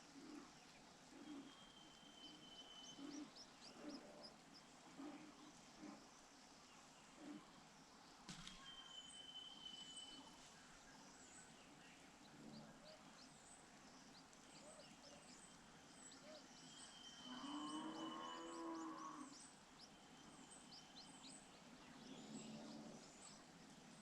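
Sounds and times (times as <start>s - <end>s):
birdsong whistle and chirps: 1.2s - 4.2s, 8.3s - 10.5s, 14.5s - 24.0s
single click: 8.3s - 8.7s.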